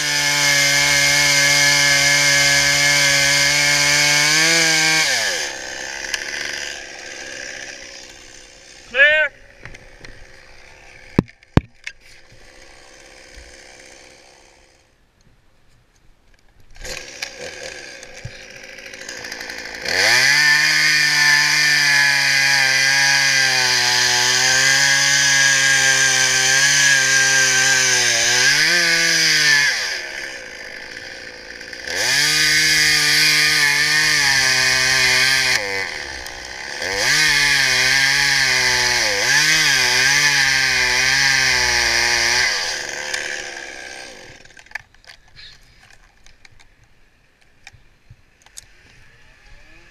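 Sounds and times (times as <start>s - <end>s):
chainsaw engine revving: 0.0s - 11.5s, 12.2s - 14.8s, 16.8s - 44.8s, 48.5s - 49.9s.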